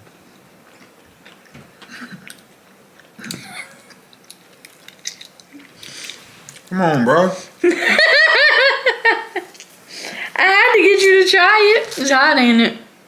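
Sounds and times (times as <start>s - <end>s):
person chewing crunchy food: 0.5s - 6.7s.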